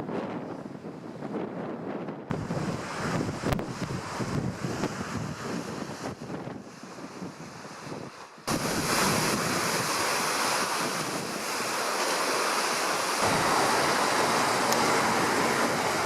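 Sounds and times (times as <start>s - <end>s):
wind on microphone: 0.0s - 16.0s
sea surf: 2.3s - 16.0s.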